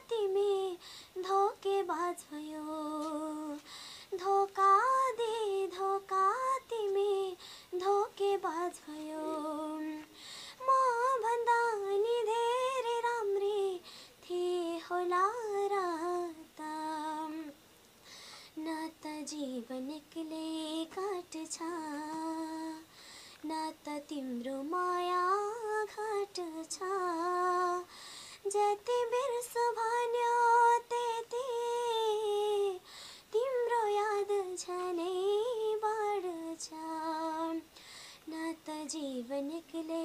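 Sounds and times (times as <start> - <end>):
girl singing unaccompanied: 0.0 - 40.0.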